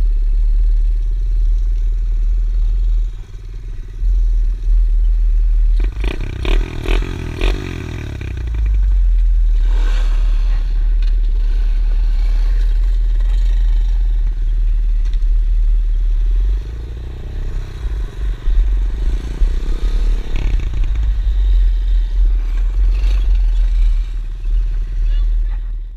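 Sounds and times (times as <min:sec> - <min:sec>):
pit bike engine running: 0:00.0 - 0:09.5.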